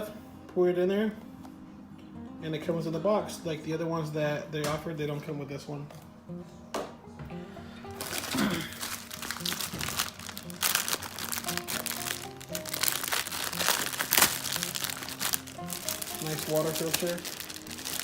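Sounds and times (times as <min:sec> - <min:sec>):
background music: 0:00.0 - 0:18.0
packaging crinkling: 0:08.0 - 0:18.0.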